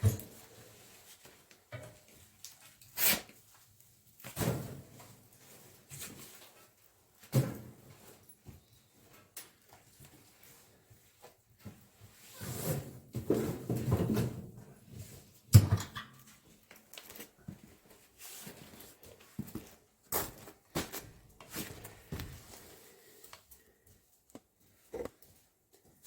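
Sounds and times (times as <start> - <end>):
firewood and stove parts clattering: 12.5 - 14.8, 15.5 - 17.1.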